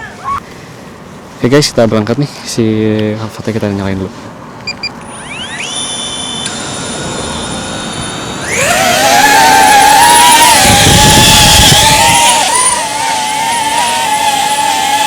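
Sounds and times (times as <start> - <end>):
short electronic beeps: 4.6 - 6.5
drone propeller whine: 5.0 - 15.0.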